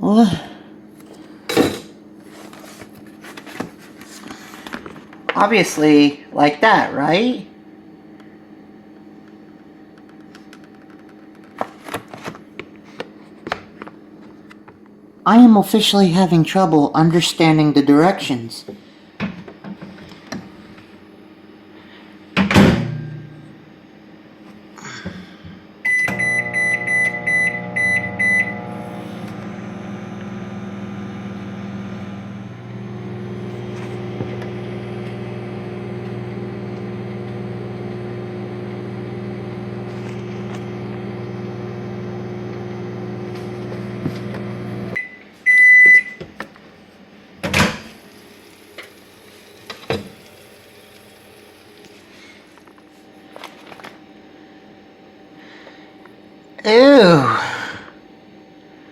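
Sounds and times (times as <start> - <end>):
microwave running hum: 0.0 - 58.9
microwave loud beep: 25.8 - 39.9, 40.6 - 46.2
microwave keypad beeping: 25.9 - 28.7, 45.0 - 46.2.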